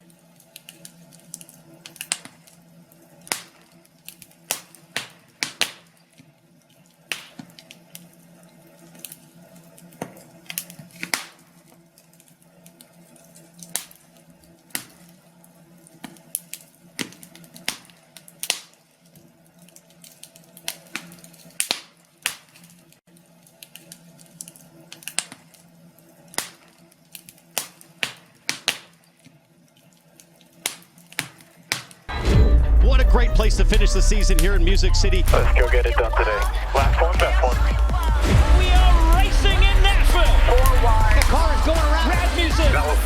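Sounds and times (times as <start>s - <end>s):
wood fire crackling: 0.0s - 43.0s
faint low hum: 32.1s - 43.0s.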